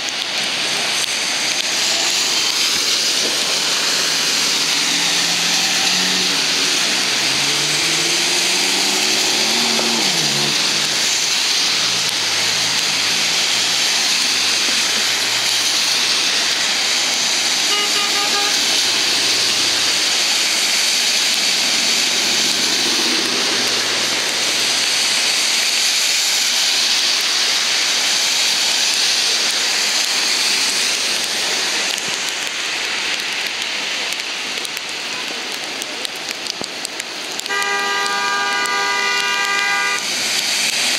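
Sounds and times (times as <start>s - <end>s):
heavy rain pouring: 0.0s - 40.9s
vehicle passing: 3.2s - 20.2s, 21.2s - 25.0s.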